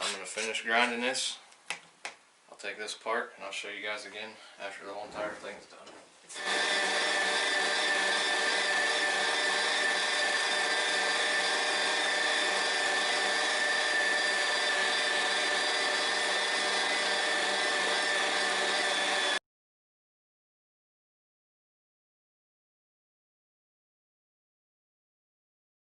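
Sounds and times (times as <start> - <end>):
electric meat grinder whining: 6.3 - 19.4.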